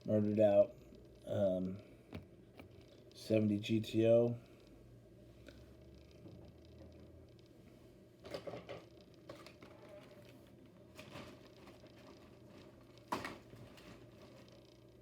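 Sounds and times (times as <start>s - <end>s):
packaging rustling: 9.3s - 14.6s.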